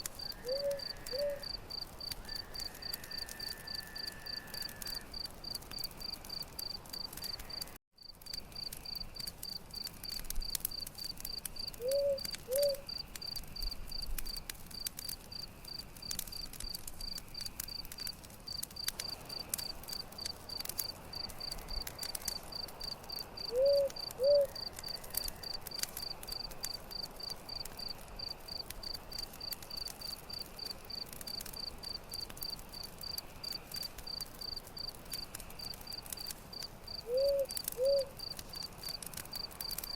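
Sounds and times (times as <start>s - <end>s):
campfire crackling: 0.0s - 39.9s
crickets chirping: 0.2s - 14.4s, 35.6s - 39.9s.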